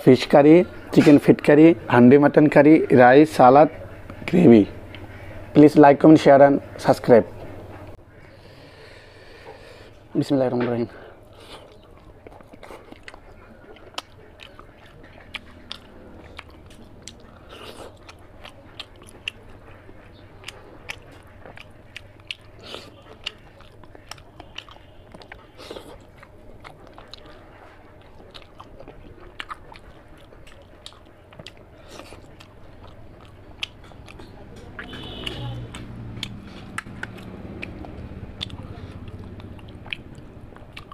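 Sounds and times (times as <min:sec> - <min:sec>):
person chewing food: 0:02.6 - 0:05.5, 0:11.1 - 0:40.9.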